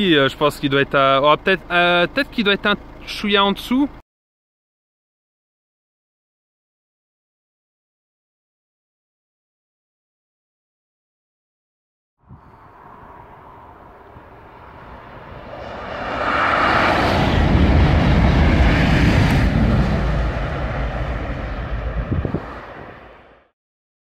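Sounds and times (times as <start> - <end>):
high-speed train passing: 12.4 - 23.5.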